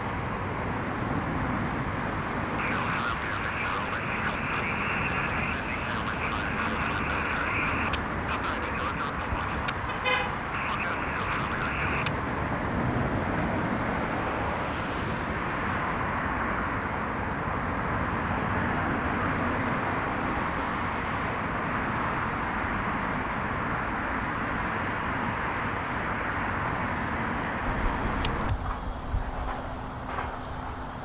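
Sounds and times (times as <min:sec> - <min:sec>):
aircraft engine rush: 0:00.0 - 0:31.0.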